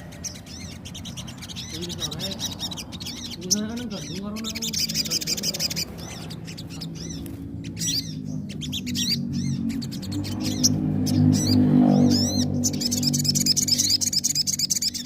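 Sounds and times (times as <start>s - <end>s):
bird singing high chirps and trill: 0.0s - 15.0s
background music hum: 4.8s - 15.0s.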